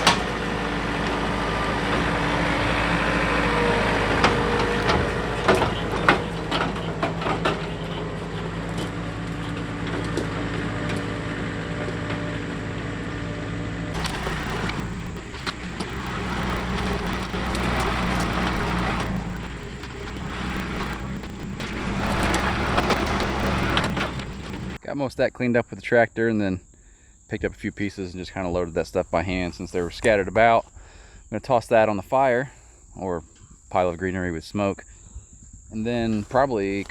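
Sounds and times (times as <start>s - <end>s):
tractor diesel engine running: 0.0s - 24.8s
branches snapping and cracking: 14.0s - 24.8s.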